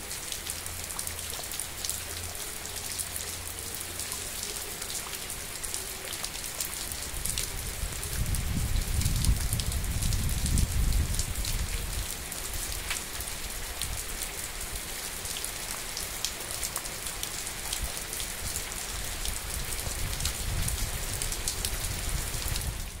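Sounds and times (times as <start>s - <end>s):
raindrops ticking in puddle: 0.0s - 23.0s.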